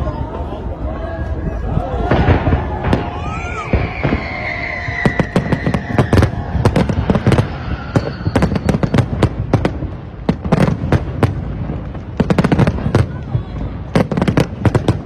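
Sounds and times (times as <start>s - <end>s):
fireworks exploding: 0.0s - 15.0s
faint high whistling tone: 7.6s - 9.1s.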